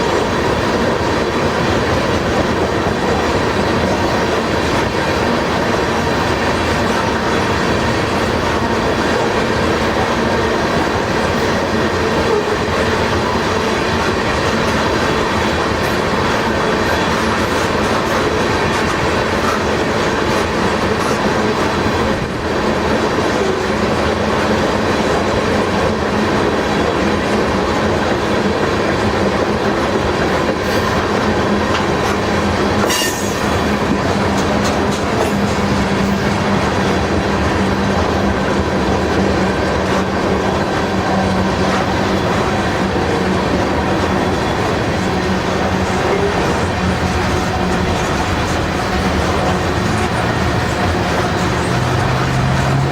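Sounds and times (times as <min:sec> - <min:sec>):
freight train wheels on rails: 0:00.0 - 0:52.9
high wheel squeal: 0:32.8 - 0:33.6.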